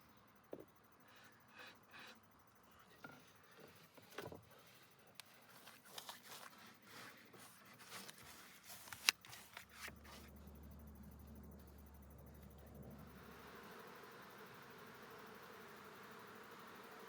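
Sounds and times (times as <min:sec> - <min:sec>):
rustling and scraping strokes: 0:04.6 - 0:10.3.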